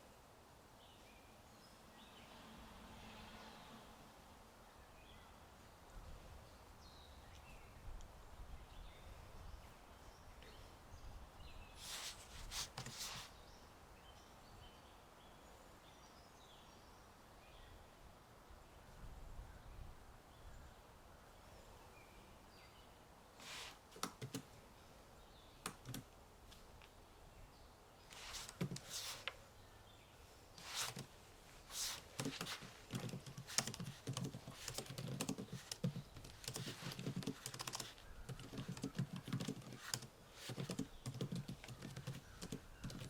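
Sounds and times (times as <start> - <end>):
low wind: 0.0 - 43.0
computer keyboard typing: 24.0 - 24.4, 25.6 - 26.1, 28.4 - 29.0, 31.8 - 43.0.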